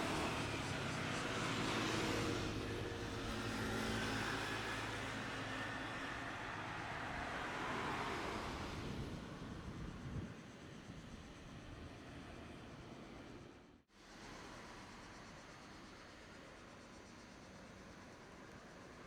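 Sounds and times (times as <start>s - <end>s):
road vehicle passing by: 0.0s - 9.4s.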